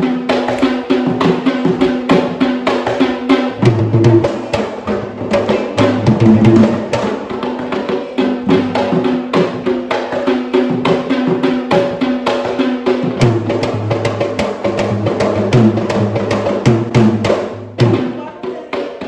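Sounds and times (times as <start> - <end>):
fast folk drumming: 0.0 - 19.0.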